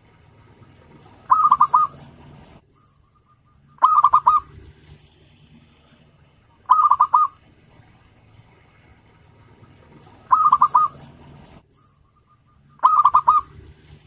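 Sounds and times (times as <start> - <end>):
dove cooing: 0.8 - 4.7, 6.6 - 7.5, 9.7 - 11.5, 12.1 - 14.0.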